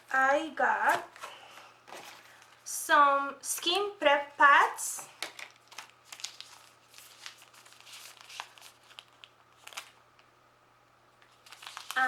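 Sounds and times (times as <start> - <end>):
packaging crinkling and rustling: 5.2 - 10.3, 11.2 - 12.0.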